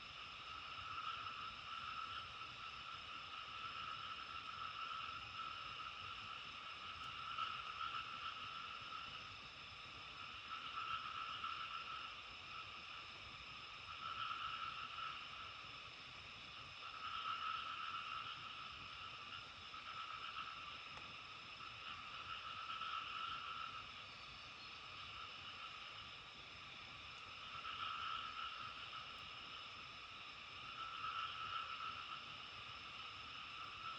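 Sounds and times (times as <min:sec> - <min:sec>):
faint background hiss: 0:00.0 - 0:33.9.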